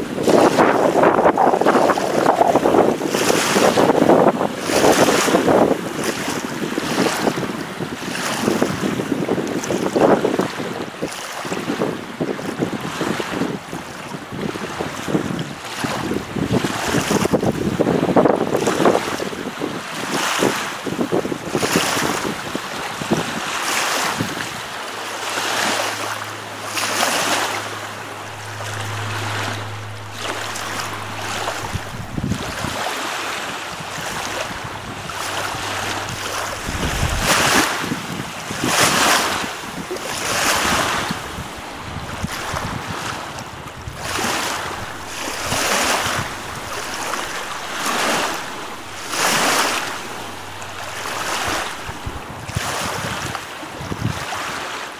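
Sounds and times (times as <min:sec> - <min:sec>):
wind on microphone: 0:00.0 - 0:54.8
lake waves washing in: 0:00.0 - 0:54.9
low steady hum: 0:26.0 - 0:37.8, 0:39.7 - 0:52.6.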